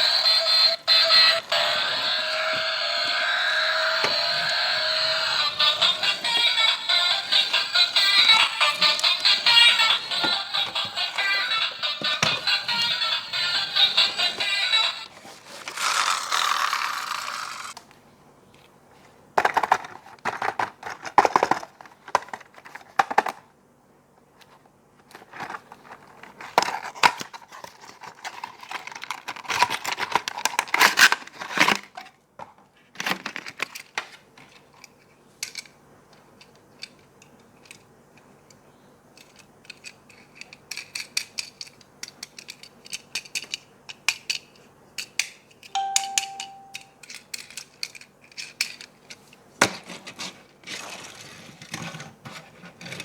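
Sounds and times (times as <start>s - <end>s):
packaging crinkling and tearing: 25.3s - 31.9s.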